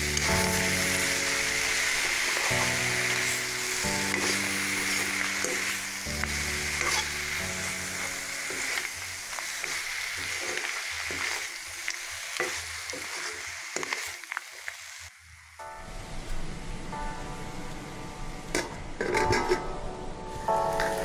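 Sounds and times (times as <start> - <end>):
curry sizzling in a pan: 0.0 - 15.6, 20.4 - 21.0
spatula scraping a pan: 4.1 - 7.2.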